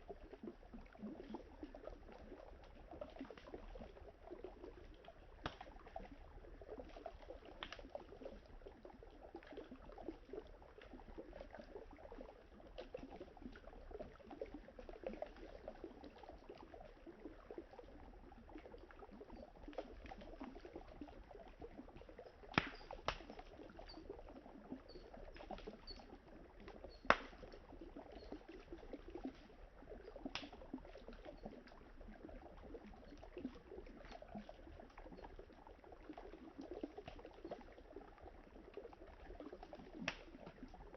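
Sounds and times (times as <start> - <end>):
campfire crackling and popping: 5.4 - 8.2, 21.9 - 24.1, 26.7 - 29.4, 30.2 - 30.7, 39.9 - 40.6
flowing river water: 18.4 - 37.9.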